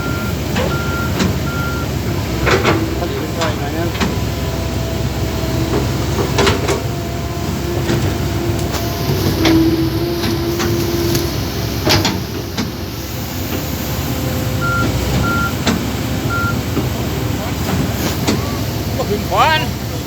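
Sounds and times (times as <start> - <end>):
short high beeps: 0.0 - 1.9, 14.6 - 15.6, 16.3 - 16.6
vehicle engine running: 0.0 - 20.0
held tone: 14.6 - 15.6.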